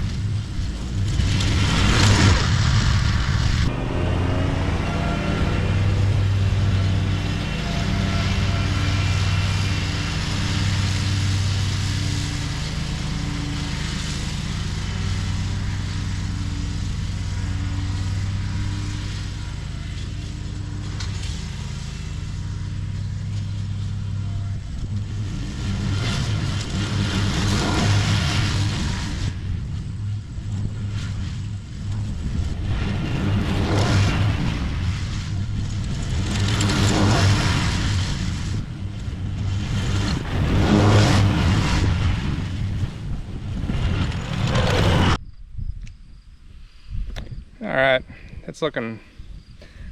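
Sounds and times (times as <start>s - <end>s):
lawn mower mulching grass: 0.0s - 45.2s.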